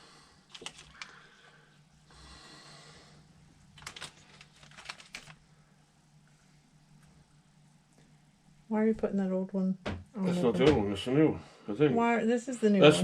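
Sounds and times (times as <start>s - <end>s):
low steady hum: 0.0s - 13.0s
small parts and tools clicking: 0.5s - 1.2s.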